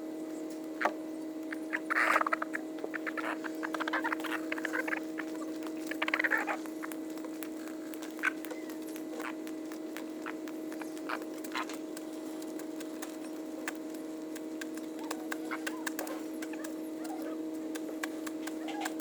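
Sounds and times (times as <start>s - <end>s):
steady low hum: 0.0s - 19.0s
chickens pecking at feed: 1.4s - 19.0s
chicken clucking: 10.2s - 19.0s.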